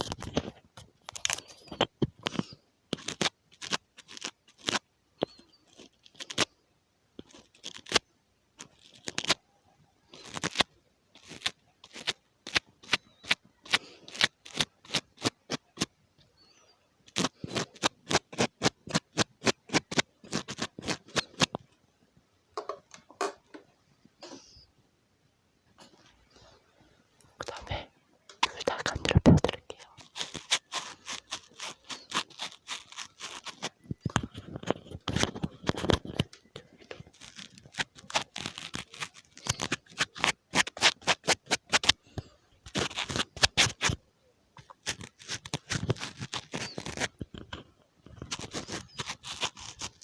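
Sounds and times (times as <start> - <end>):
tapping on a microphone: 22.6 - 24.4, 28.3 - 29.8.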